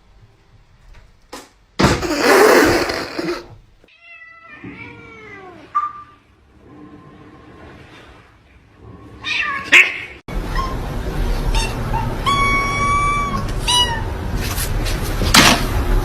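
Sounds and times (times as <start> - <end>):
cat meowing: 11.5 - 14.2.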